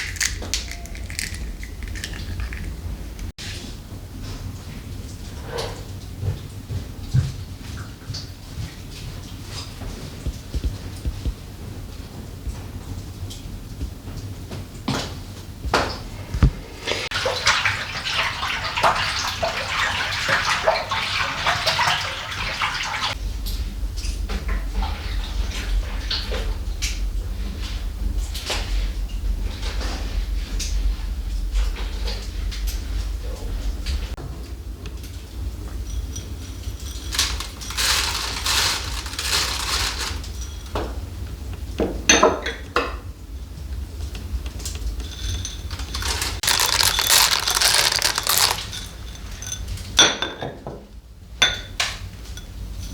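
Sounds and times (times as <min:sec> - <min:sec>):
crockery clinking: 0:00.0 - 0:03.3, 0:45.0 - 0:50.6
dishes rustling and scraping: 0:00.0 - 0:03.3, 0:35.7 - 0:40.8, 0:44.9 - 0:50.6
water splashing and running: 0:00.0 - 0:03.3, 0:16.3 - 0:23.2, 0:37.0 - 0:40.3, 0:45.7 - 0:49.4.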